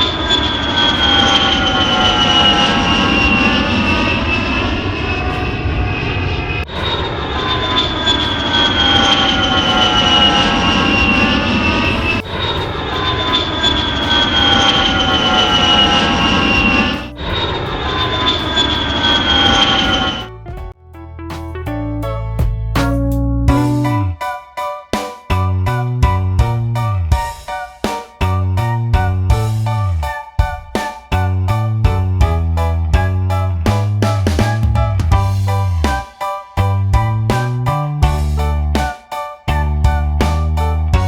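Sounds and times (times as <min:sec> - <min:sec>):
jet engine roar and whine: 0:00.0 - 0:20.3.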